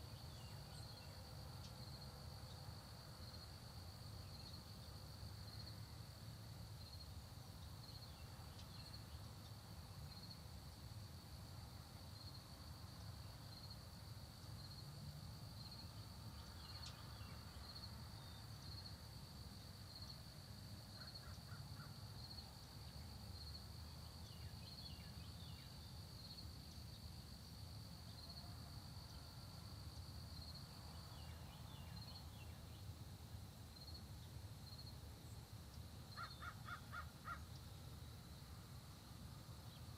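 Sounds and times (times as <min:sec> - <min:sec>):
crickets trilling: 0:00.0 - 0:39.9
faint bird calls: 0:21.0 - 0:22.0, 0:36.1 - 0:37.6.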